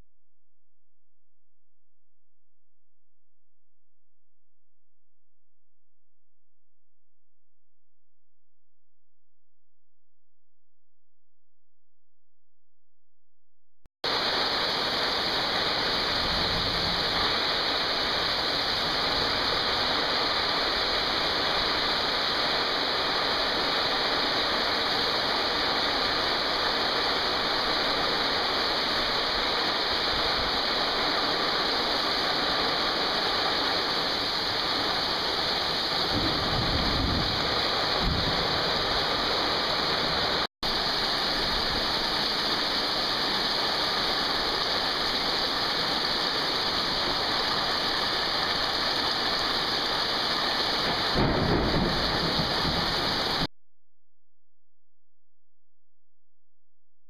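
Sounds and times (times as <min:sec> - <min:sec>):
heavy rain pouring: 0:14.1 - 0:53.5.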